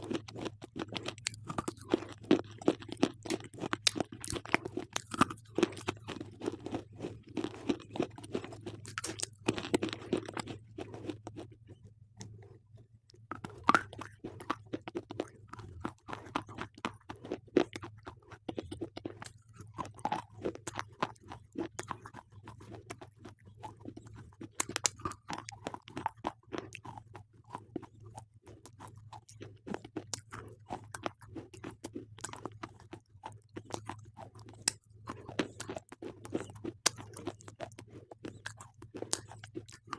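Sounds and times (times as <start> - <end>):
pencils being chewed crunching: 0.0 - 39.9.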